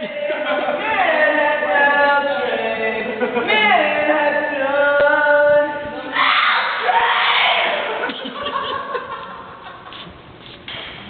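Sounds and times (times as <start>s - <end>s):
man singing unaccompanied: 0.0s - 6.2s.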